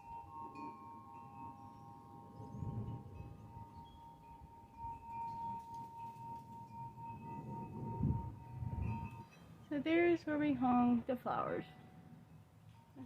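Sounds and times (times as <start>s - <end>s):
wind chime ringing: 0.0s - 13.0s
low rumble: 7.2s - 9.2s.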